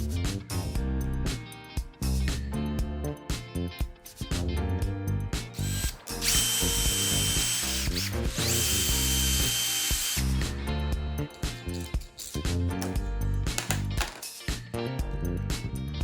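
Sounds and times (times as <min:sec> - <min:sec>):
background music with steady beat: 0:00.0 - 0:16.0
electric power tool whining: 0:05.6 - 0:10.6.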